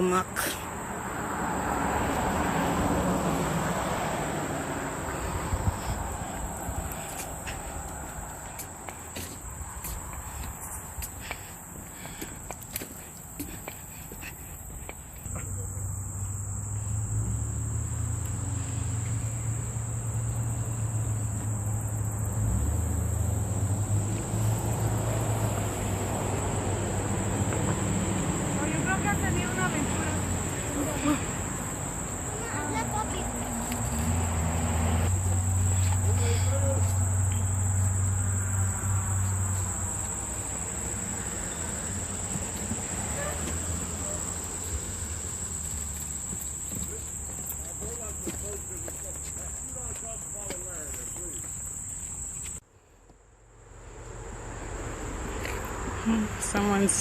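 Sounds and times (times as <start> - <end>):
insects trilling: 0.0 - 52.6
wind rumble on microphone: 5.4 - 6.9.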